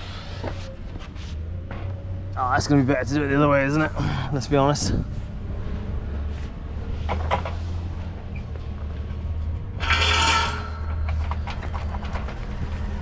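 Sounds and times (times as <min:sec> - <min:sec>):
metallic clicks and knocks: 0:09.8 - 0:12.7.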